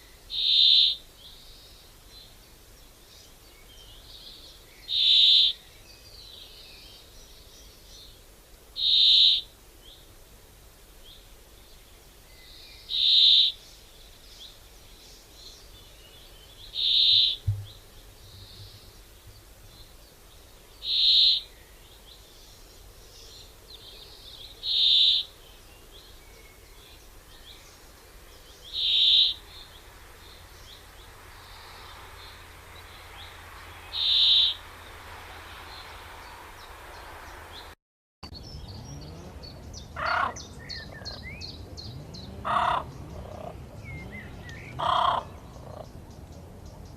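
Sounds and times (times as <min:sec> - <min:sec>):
lower-pitched bird call: 0:00.0 - 0:01.0, 0:04.8 - 0:05.6, 0:08.8 - 0:09.5, 0:16.7 - 0:17.8, 0:20.8 - 0:21.5, 0:24.6 - 0:25.4, 0:28.6 - 0:29.7, 0:33.1 - 0:34.8, 0:39.8 - 0:46.0
high bird call: 0:33.9 - 0:34.6, 0:40.0 - 0:41.2.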